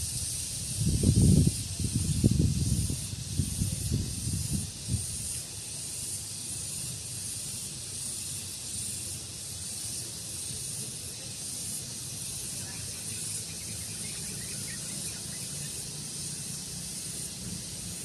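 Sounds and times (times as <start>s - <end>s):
wind rumbling on microphone: 0.0s - 5.3s
steady high hiss: 0.0s - 18.0s.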